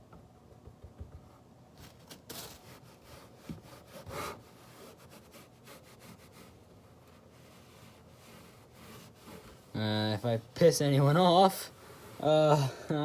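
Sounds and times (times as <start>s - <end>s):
hand scrubbing speaker casing: 2.6s - 12.6s.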